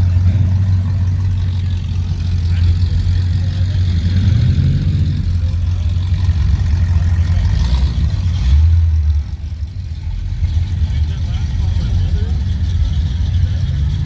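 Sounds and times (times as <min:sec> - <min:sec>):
car engine rumbling past: 0:00.0 - 0:14.0.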